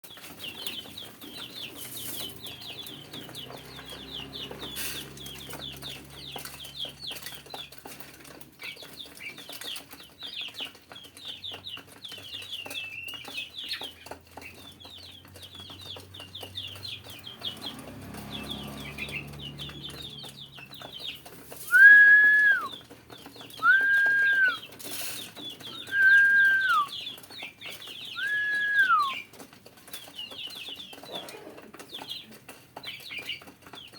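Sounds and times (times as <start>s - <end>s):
loud whistled notes: 21.7s - 22.8s, 23.6s - 24.6s, 25.8s - 26.9s, 28.2s - 29.2s.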